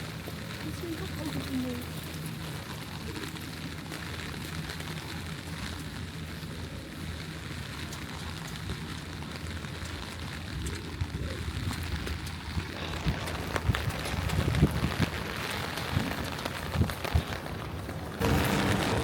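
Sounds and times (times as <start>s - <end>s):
low steady rumble: 0.0s - 19.0s
steady rain falling: 0.0s - 19.0s.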